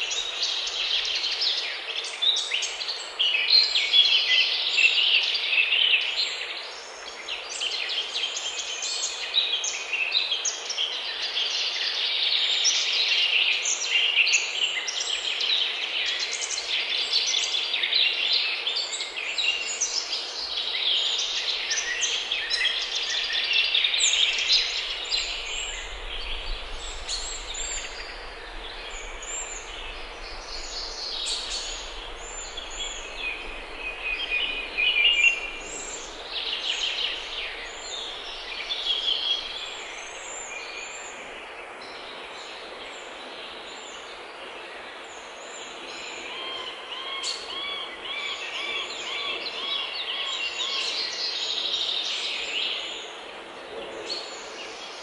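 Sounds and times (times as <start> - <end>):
songbirds singing: 0.0 - 55.0
steady hiss: 18.6 - 46.3
faint low rumble: 24.3 - 39.8.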